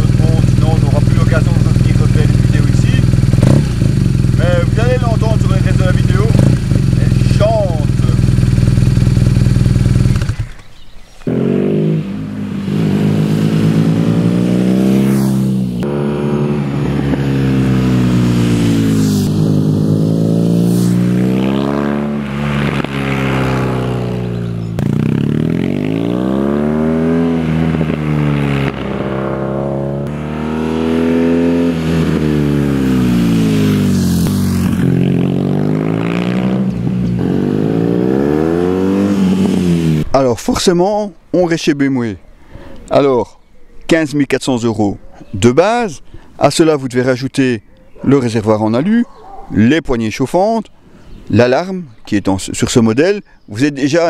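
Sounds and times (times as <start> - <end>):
motorcycle engine revving: 0.0 - 40.2.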